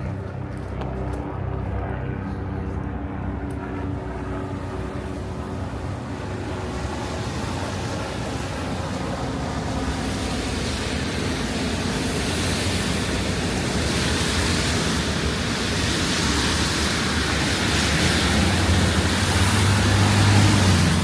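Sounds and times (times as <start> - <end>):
low engine hum: 0.0 - 21.0
traffic hissing on wet roads: 3.2 - 21.0.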